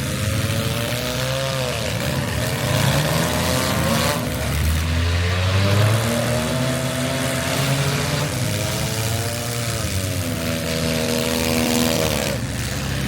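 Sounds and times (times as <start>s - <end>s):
car engines running hard: 0.0s - 13.0s.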